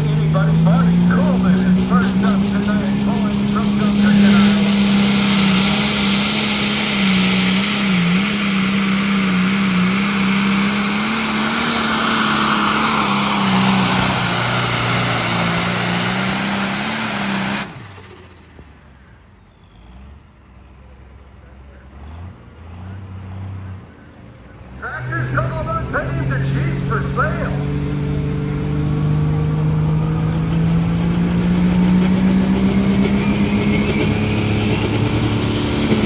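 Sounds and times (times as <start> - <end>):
tractor engine revving high: 0.0 - 20.4, 21.5 - 36.0.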